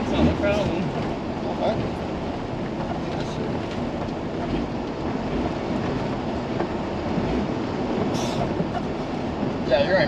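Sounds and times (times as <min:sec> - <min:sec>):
truck engine and tyres rumbling: 0:00.0 - 0:10.0.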